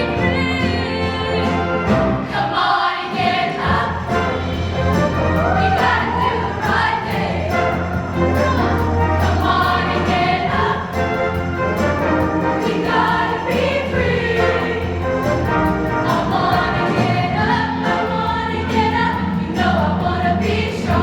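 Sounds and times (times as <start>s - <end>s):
band accompaniment: 0.0s - 21.0s
choir singing in harmony: 0.0s - 21.0s.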